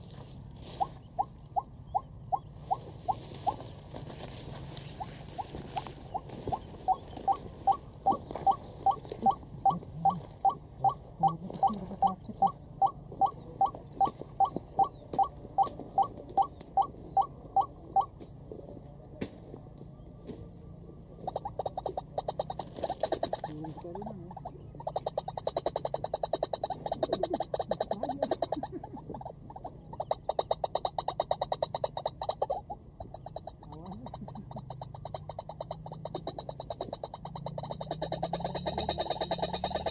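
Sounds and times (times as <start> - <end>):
waterhen calling: 4.9 - 18.1.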